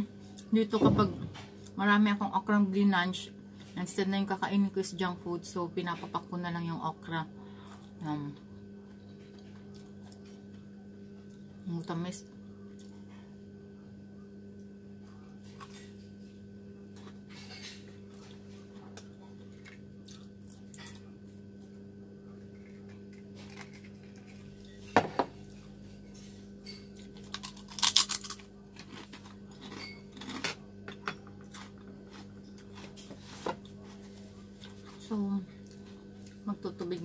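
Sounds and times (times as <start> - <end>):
steady low hum: 0.0 - 37.0
chewing: 27.1 - 33.0.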